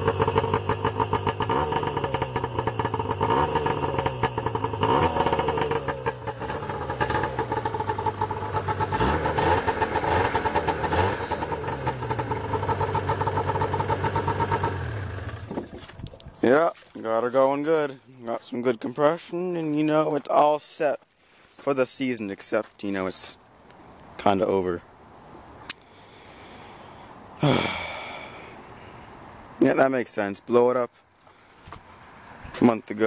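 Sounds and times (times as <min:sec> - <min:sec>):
snowmobile engine revving: 0:00.0 - 0:15.5.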